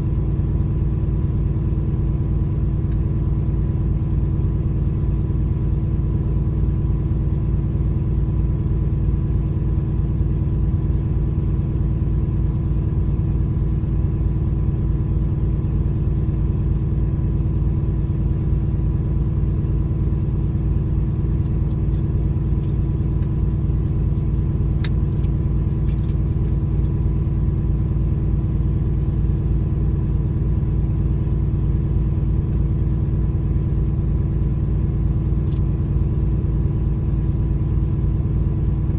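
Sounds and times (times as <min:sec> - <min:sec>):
diesel truck engine running: 0:10.9 - 0:38.9.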